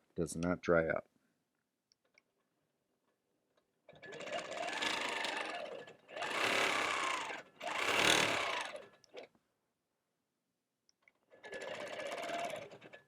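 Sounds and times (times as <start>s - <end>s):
quilting machine stitching: 3.9s - 9.3s, 11.3s - 13.0s.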